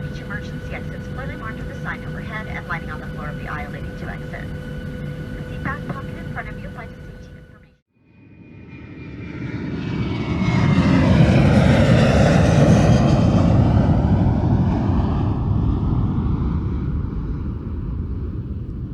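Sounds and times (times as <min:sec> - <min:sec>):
jet airliner passing by: 0:00.0 - 0:18.9.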